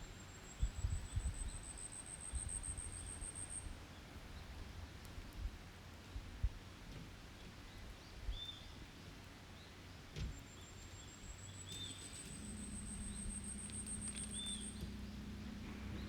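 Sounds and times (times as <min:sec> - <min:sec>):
bird chirps: 0:11.5 - 0:15.2
low steady hum: 0:11.5 - 0:16.0.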